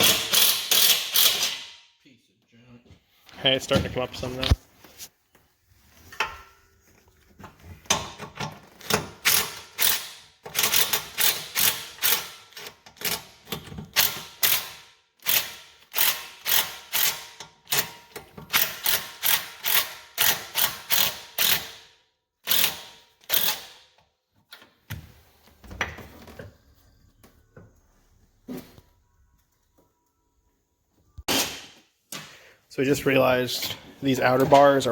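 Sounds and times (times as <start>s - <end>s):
ratchet wrench clicking: 0.0s - 1.6s, 14.0s - 17.9s.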